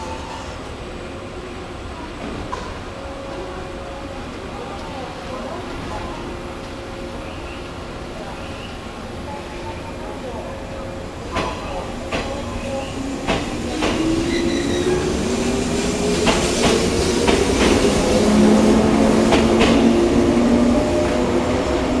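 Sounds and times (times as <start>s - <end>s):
train wheels clacking over rail joints: 13.2s - 14.1s, 19.3s - 19.9s.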